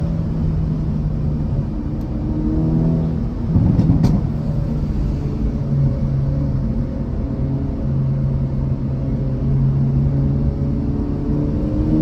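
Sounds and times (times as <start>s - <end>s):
car exhaust at steady revs: 0.0s - 12.0s
exhaust popping crackles: 3.5s - 4.5s.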